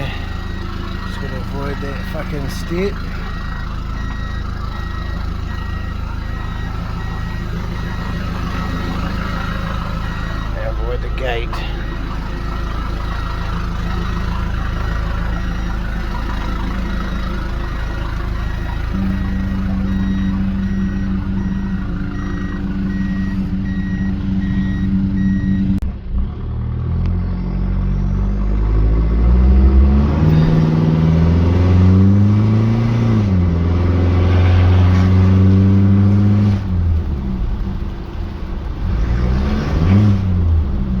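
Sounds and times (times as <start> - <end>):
faint repeating beep: 0.0 - 25.8
diesel engine running: 0.0 - 41.0.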